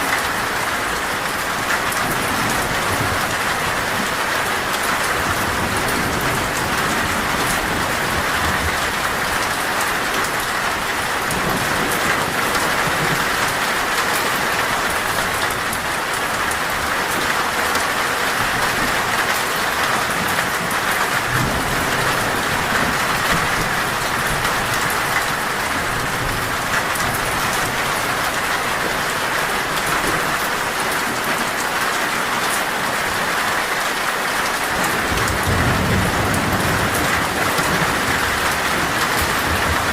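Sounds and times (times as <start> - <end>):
heavy rain on a metal roof: 0.0 - 39.9
distant thunder rumbles: 34.8 - 39.9.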